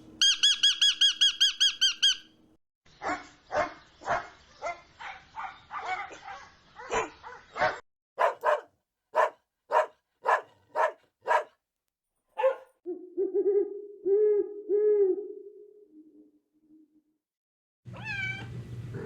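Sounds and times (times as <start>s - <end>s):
puppy yapping: 5.4s - 11.5s, 12.4s - 12.7s.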